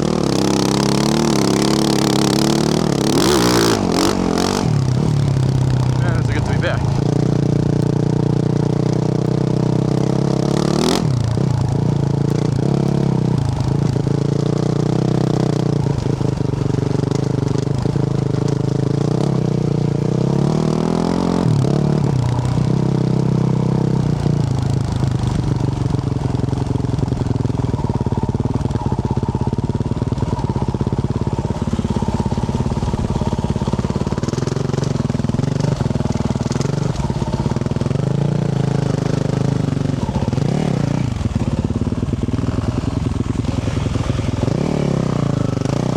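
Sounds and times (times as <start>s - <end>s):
dirt bike engine revving: 0.0s - 16.1s, 29.1s - 45.9s.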